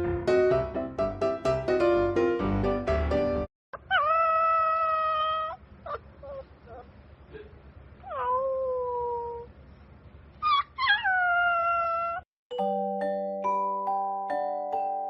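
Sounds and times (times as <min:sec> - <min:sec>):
puppy howling: 0:03.8 - 0:06.9, 0:08.0 - 0:09.5, 0:10.4 - 0:12.2
puppy yelping: 0:03.8 - 0:07.0, 0:08.0 - 0:09.5, 0:10.4 - 0:12.2
music with mallet notes: 0:12.5 - 0:15.0.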